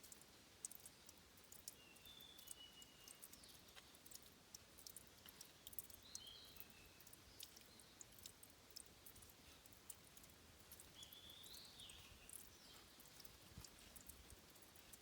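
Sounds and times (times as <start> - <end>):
soft water hiss: 0.0 - 15.0
water dripping and clicking: 0.0 - 15.0.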